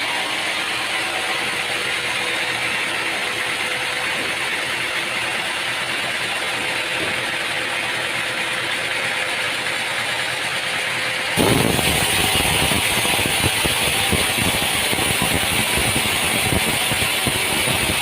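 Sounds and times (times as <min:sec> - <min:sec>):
machinery hissing: 0:11.4 - 0:18.0.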